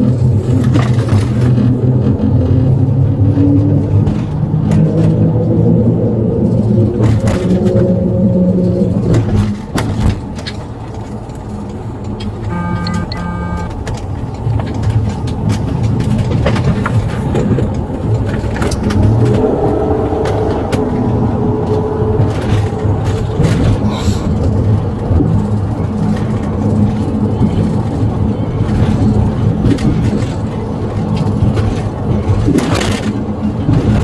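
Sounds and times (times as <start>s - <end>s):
road traffic: 0.0s - 34.0s
vehicle engine running: 10.6s - 33.1s
two-part electronic beep: 12.4s - 13.7s.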